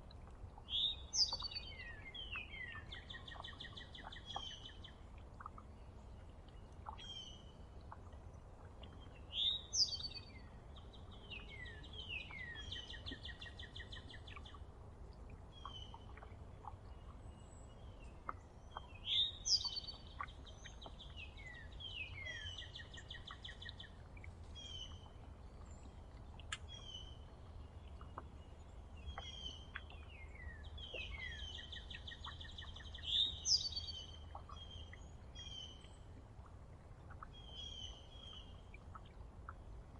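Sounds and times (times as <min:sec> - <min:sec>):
songbird singing: 0:00.0 - 0:39.8
bird chirps: 0:18.3 - 0:23.9.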